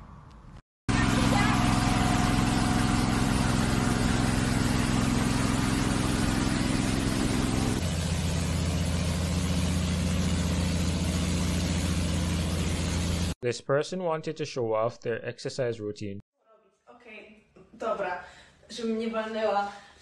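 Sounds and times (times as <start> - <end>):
engine humming: 0.9 - 13.4.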